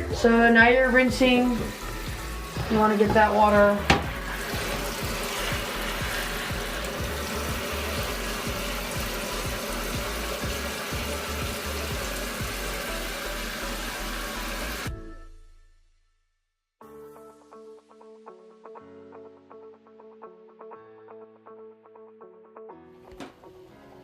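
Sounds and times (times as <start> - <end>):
water running into a washing machine tub: 0.0 - 14.9.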